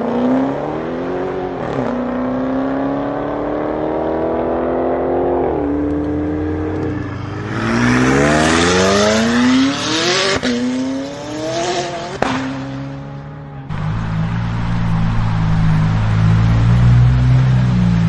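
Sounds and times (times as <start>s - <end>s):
car engine accelerating hard: 0.0s - 18.0s
exhaust cracks: 13.7s - 18.0s.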